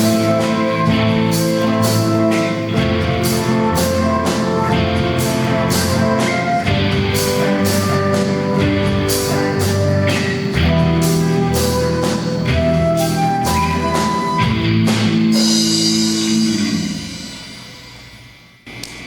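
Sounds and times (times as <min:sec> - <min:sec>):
live band playing: 0:00.0 - 0:18.6
cymbal crash: 0:14.8 - 0:18.6.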